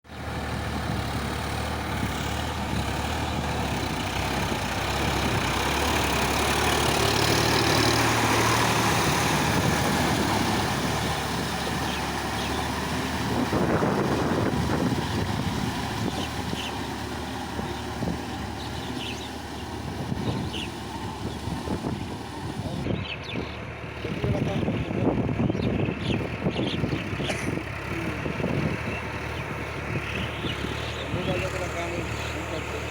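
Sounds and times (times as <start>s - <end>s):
tractor diesel engine running: 0.1s - 32.9s.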